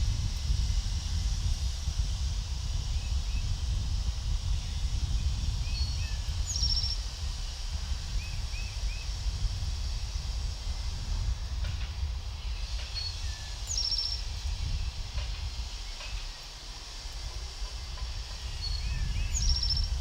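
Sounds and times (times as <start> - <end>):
steady low rumble: 0.0 - 20.0
small birds chirping: 4.4 - 11.0, 12.3 - 20.0.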